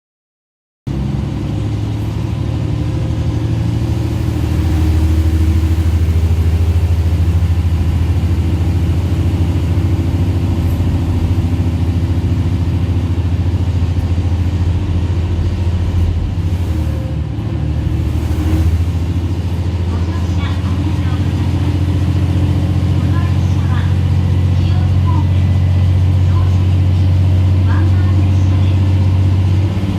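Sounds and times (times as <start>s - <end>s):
diesel train engine rumble: 0.9s - 29.9s.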